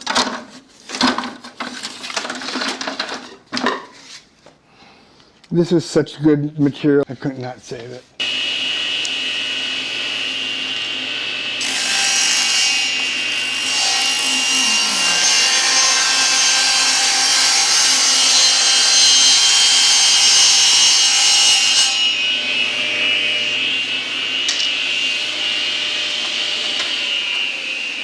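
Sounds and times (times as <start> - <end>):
power saw running: 8.2 - 17.1, 22.1 - 28.0
power saw cutting wood: 8.2 - 28.0.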